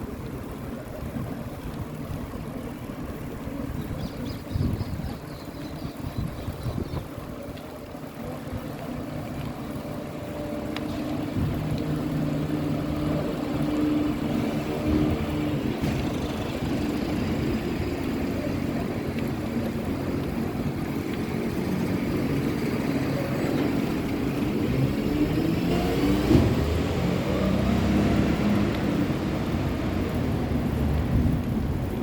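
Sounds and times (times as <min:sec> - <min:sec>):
vehicles passing: 0:00.0 - 0:32.0
vehicle accelerating: 0:08.7 - 0:32.0.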